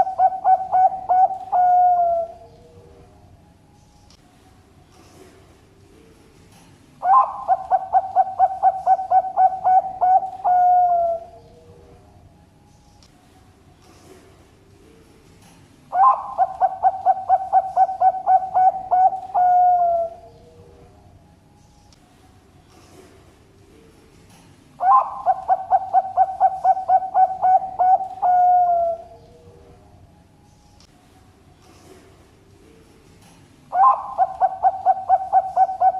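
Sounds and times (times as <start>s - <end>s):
dove cooing: 0.0s - 3.0s, 7.0s - 11.9s, 15.9s - 20.9s, 24.8s - 29.8s, 33.7s - 35.9s.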